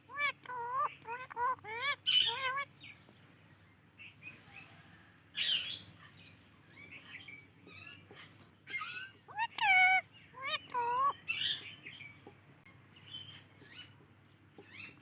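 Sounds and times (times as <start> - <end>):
parrot squawk: 0.1 - 2.7, 8.4 - 11.6.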